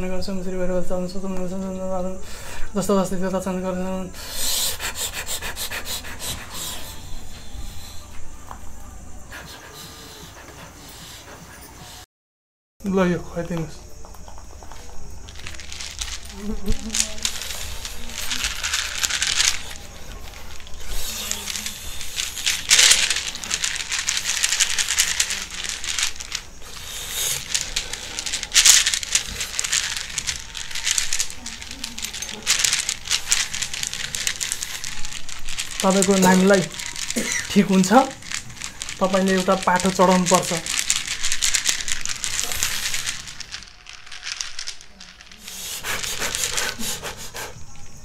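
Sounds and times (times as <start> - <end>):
bundle shaken rustling rattle: 14.2 - 47.4.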